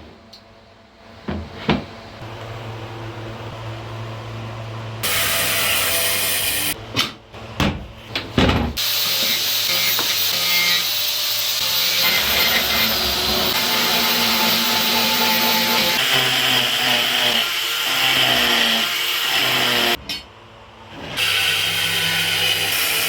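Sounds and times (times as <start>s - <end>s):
power tools cutting wood: 8.8s - 20.0s, 21.0s - 23.0s.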